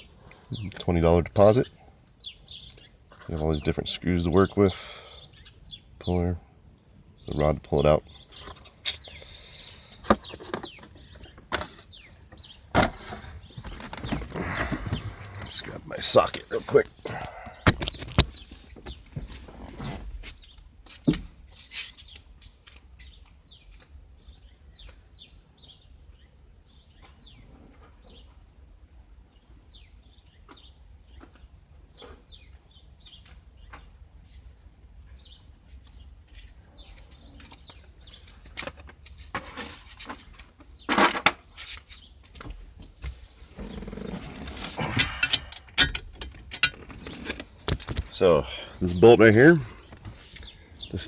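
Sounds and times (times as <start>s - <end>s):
birds chirping faintly: 0.0s - 51.0s
hand tools clinking and rattling: 43.7s - 47.9s.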